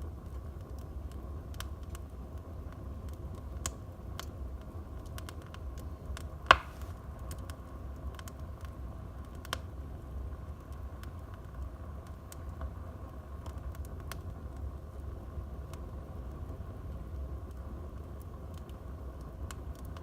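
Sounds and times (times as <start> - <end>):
low rumble of burning: 0.0 - 20.0
wood fire crackling: 0.0 - 20.0
sharp loud pop: 6.5 - 6.9.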